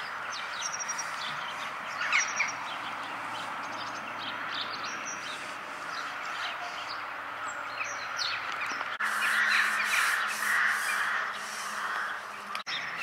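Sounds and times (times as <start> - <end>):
small birds chirping: 0.0 - 13.0
bird giving harsh calls: 9.0 - 12.4.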